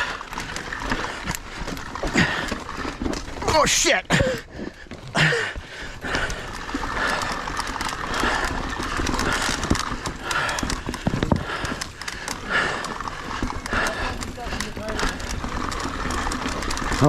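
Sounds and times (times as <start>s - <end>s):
mountain bike clattering over rocks: 0.0s - 17.0s.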